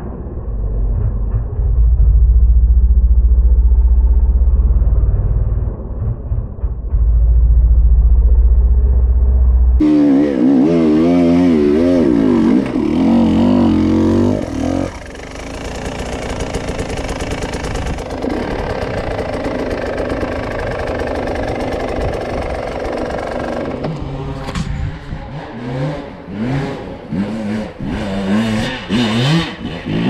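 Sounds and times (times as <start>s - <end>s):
motorcycle engine revving: 6.9s - 30.0s.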